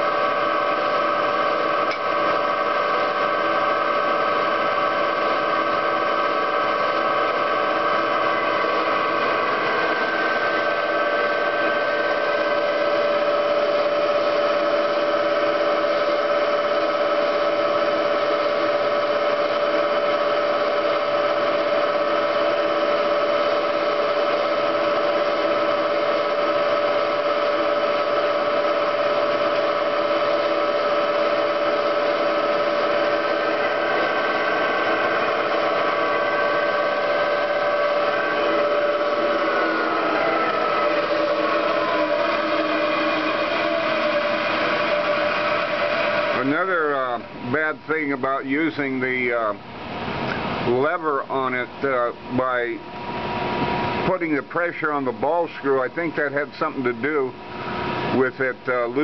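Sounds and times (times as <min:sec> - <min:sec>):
spindle motor whining while drilling: 0:00.0 - 0:47.8.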